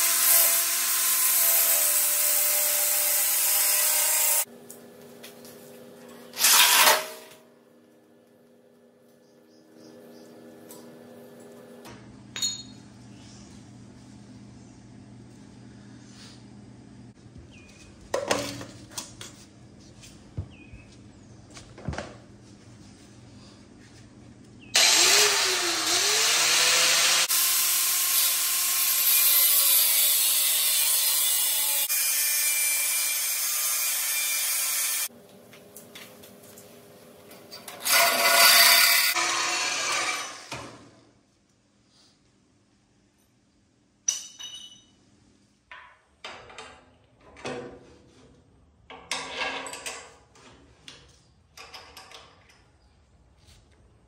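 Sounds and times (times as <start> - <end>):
power tool spinning: 6.4 - 7.2, 24.8 - 32.2, 37.8 - 40.8.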